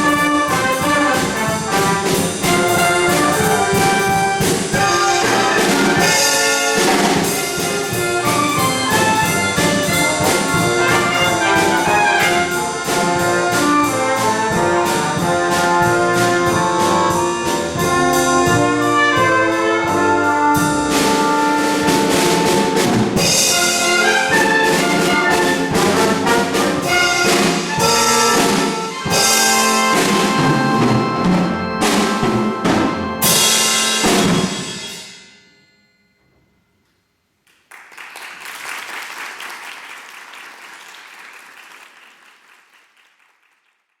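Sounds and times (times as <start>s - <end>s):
orchestra with brass and percussion: 0.0s - 35.3s
audience applause: 37.5s - 44.0s.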